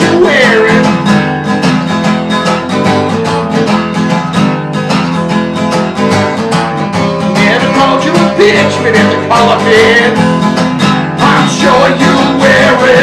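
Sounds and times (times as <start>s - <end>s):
person singing: 0.0s - 1.1s, 7.4s - 10.3s, 11.2s - 13.0s
acoustic guitar strumming: 0.0s - 13.0s.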